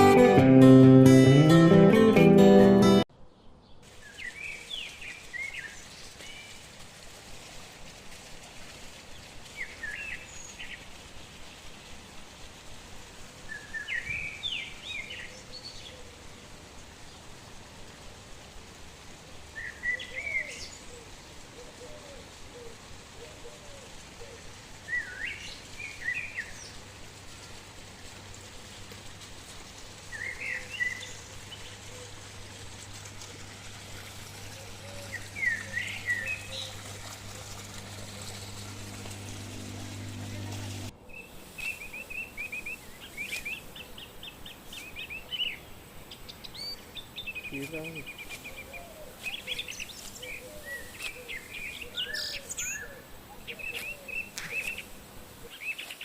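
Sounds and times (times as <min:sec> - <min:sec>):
outdoor background hiss: 0:00.0 - 0:56.0
songbird singing: 0:30.1 - 0:32.2, 0:34.4 - 0:56.0.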